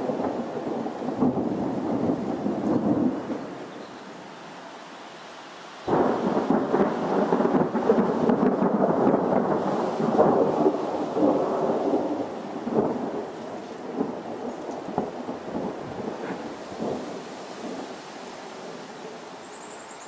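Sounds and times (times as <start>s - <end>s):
thunder rolling and crackling: 0.0s - 3.8s, 5.9s - 18.0s.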